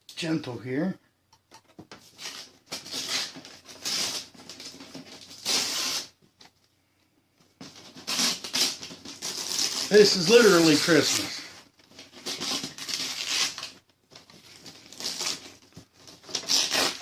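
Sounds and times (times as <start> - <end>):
wrapping paper rustling: 7.7 - 17.0.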